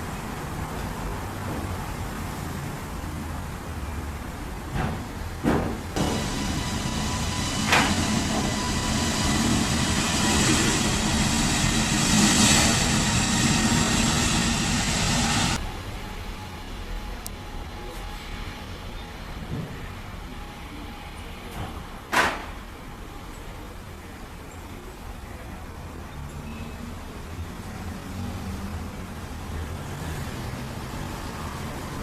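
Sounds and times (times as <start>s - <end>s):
low rumble: 6.0s - 15.6s
jet engine roar: 6.0s - 19.8s
high engine whine: 6.0s - 21.7s.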